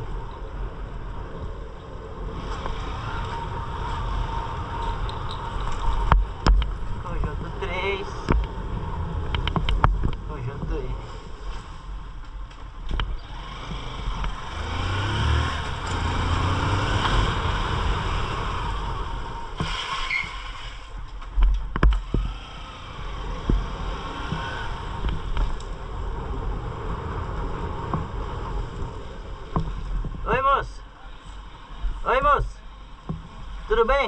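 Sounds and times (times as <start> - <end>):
loud low bumps: 1.2 - 19.8, 20.9 - 31.0
motorcycle engine running: 20.9 - 30.3.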